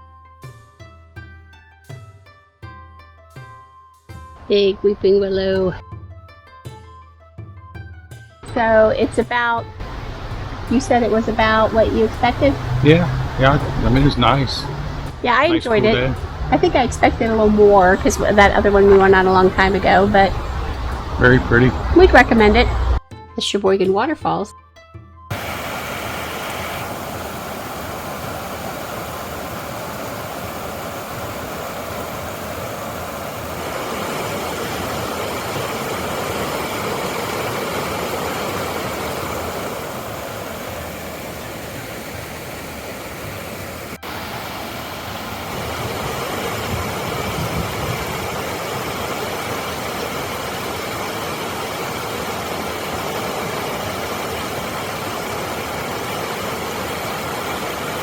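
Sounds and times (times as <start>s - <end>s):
waterfall rushing: 9.8s - 23.0s, 25.3s - 58.0s.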